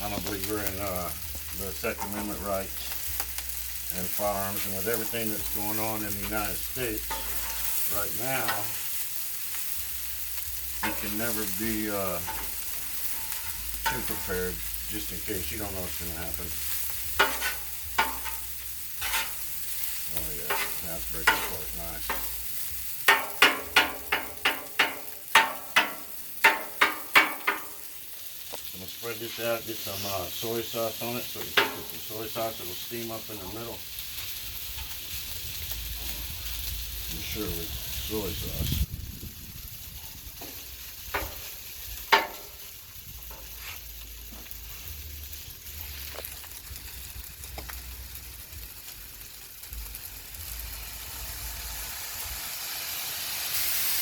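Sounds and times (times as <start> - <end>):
spatula scraping griddle: 0.0 - 27.7, 29.1 - 33.6, 40.1 - 46.5
rice sizzling on a griddle: 0.0 - 54.0
metal spatula clanking on griddle: 5.7 - 8.8, 10.8 - 14.7, 17.1 - 22.4, 23.1 - 27.8, 31.5 - 32.0, 42.1 - 42.6.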